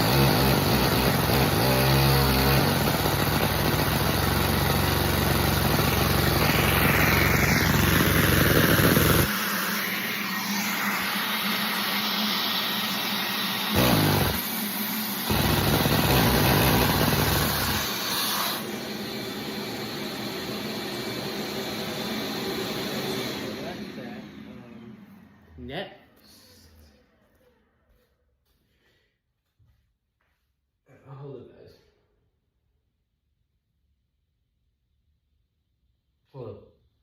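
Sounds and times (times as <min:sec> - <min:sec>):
engine sputter: 0:00.0 - 0:09.3, 0:13.7 - 0:14.5, 0:15.2 - 0:18.1
small gasoline engine running: 0:00.0 - 0:25.2.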